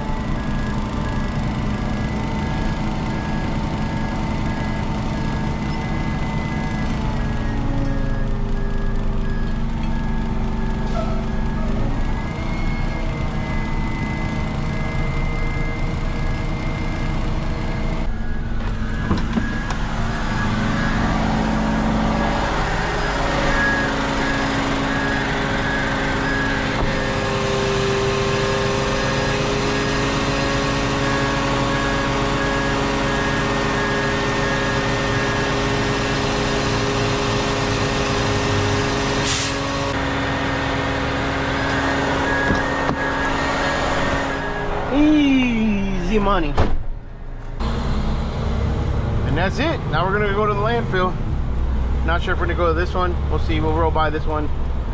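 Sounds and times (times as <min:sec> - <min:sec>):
truck engine running: 0:00.0 - 0:54.9.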